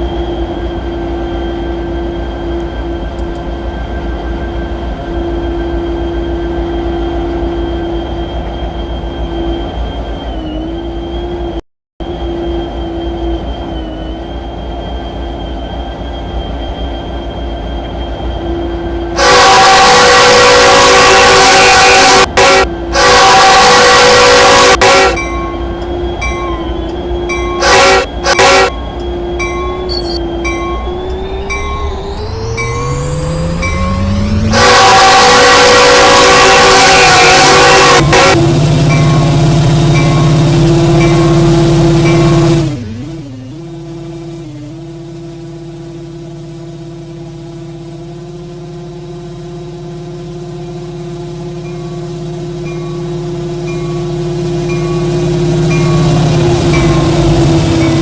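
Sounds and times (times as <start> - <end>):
engine running steadily: 12.0 - 58.0
locomotive horn blasts: 19.0 - 44.8, 49.4 - 58.0
steady tone: 19.2 - 43.9, 50.8 - 58.0
repeating ringing: 24.5 - 34.6, 37.6 - 43.1, 51.6 - 58.0.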